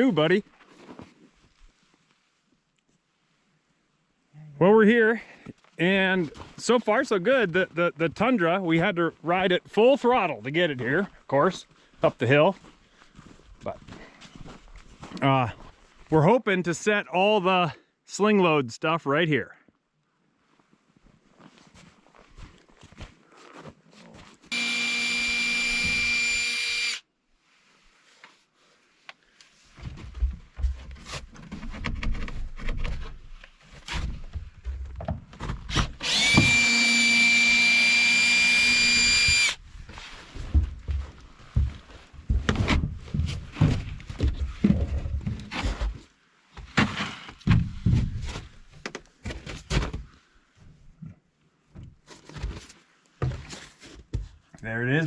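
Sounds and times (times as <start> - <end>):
cordless power drill running: 24.5 - 27.0, 36.0 - 39.6
knocks and handling rumbles: 39.8 - 46.0.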